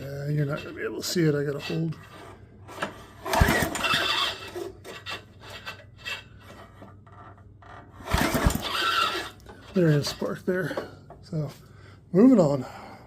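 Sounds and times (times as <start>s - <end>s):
recoil starter cord pulled: 2.8s - 6.2s, 8.0s - 9.7s
engine turning over: 3.2s - 6.2s, 8.0s - 9.5s.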